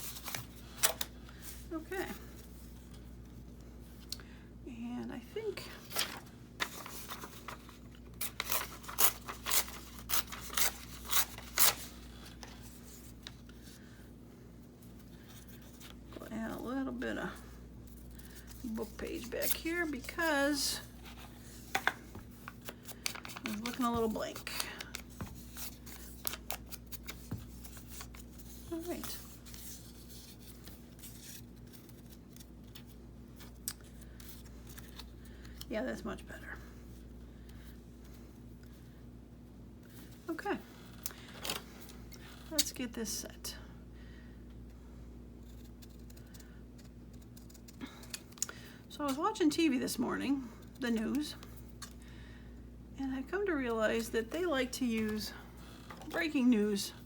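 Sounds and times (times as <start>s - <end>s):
scissors cutting paper: 8.2s - 11.9s, 45.4s - 48.4s.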